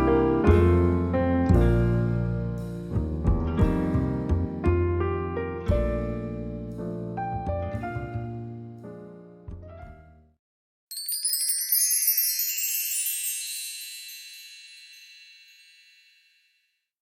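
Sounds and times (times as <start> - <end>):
soft piano music: 0.0 - 10.3
bar chime cascade: 10.9 - 16.6.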